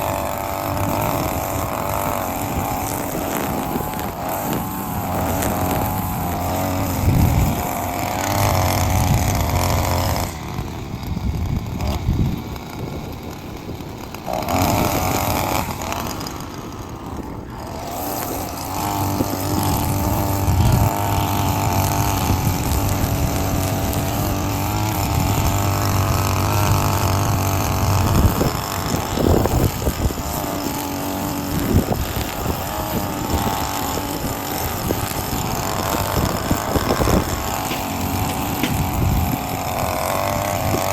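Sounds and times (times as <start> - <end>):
lawn mower engine running: 0.0 - 40.9.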